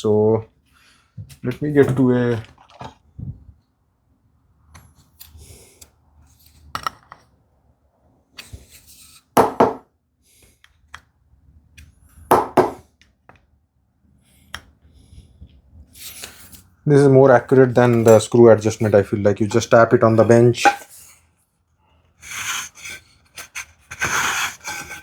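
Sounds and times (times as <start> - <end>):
wooden knocks on workbench: 9.4 - 9.8, 12.3 - 12.8.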